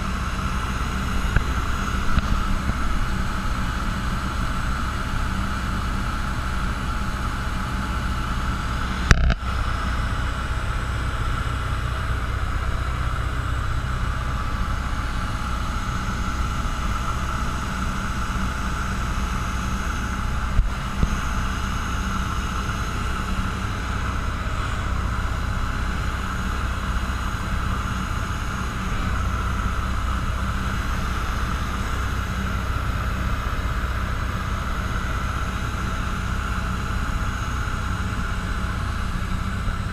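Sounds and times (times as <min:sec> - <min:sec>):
aircraft engine and propeller droning: 0:00.0 - 0:39.9.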